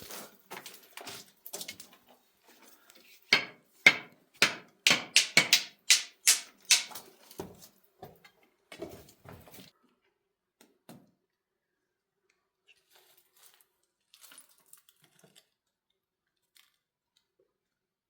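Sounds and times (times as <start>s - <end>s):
sharp knocks: 3.3s - 7.0s.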